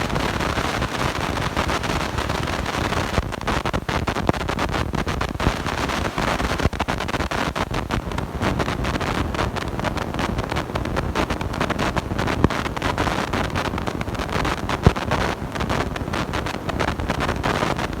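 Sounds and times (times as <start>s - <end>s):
sharp microphone pops: 0.0s - 9.1s
microphone crackling and rumbling: 0.0s - 18.0s.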